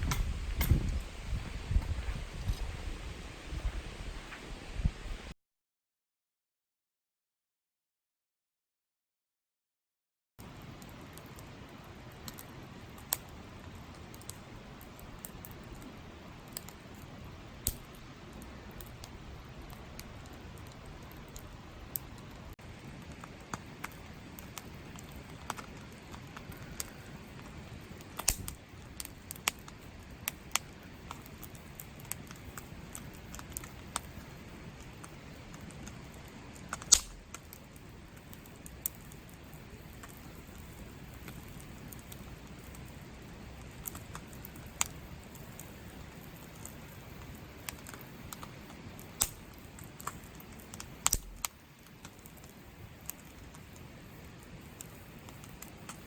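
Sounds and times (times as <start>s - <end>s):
rain hiss: 0.0s - 5.3s, 10.4s - 56.0s
sharp taps and clicks: 36.6s - 37.5s, 49.2s - 52.2s.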